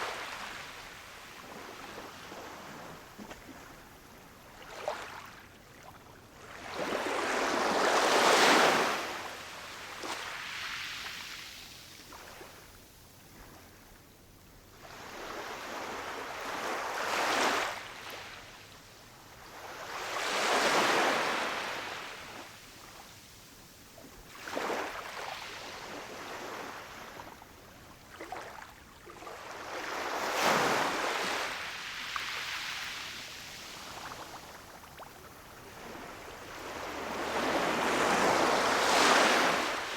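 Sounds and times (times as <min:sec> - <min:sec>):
ocean waves breaking on shore: 0:35.6 - 0:39.9.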